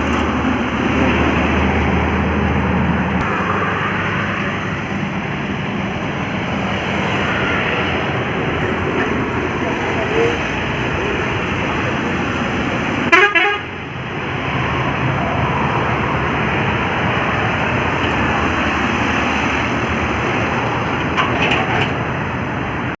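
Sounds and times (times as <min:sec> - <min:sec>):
truck engine and tyre noise: 0:00.0 - 0:23.0
truck horn blast: 0:13.1 - 0:13.8.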